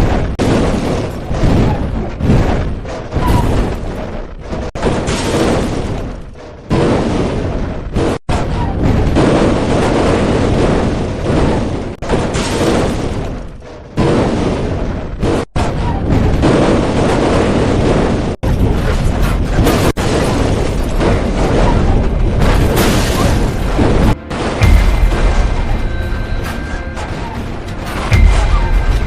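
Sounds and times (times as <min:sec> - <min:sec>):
loud booms and explosions: 0:00.0 - 0:29.0
music: 0:24.2 - 0:29.0.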